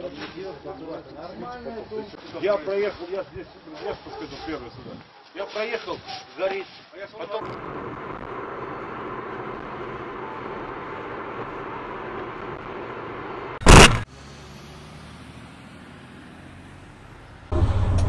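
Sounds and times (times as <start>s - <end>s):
car road and engine noise: 7.4s - 18.0s
loud crash of impact: 13.6s - 14.0s.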